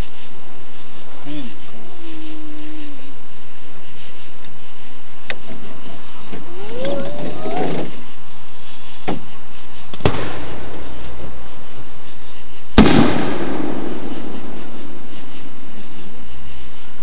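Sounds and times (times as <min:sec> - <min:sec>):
fireworks bursting: 0:02.0 - 0:16.8
echoing bang: 0:12.8 - 0:15.1.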